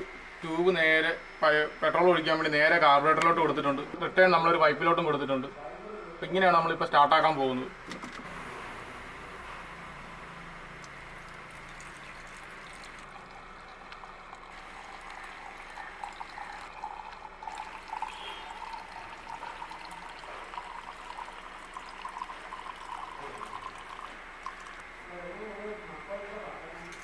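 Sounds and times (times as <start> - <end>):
petrol trickling through a tube: 10.8 - 24.9.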